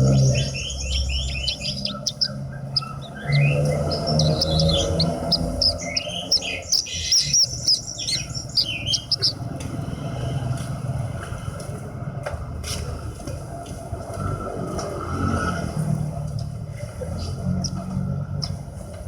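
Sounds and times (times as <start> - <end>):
lark singing chirps and trills: 0.0 - 9.9.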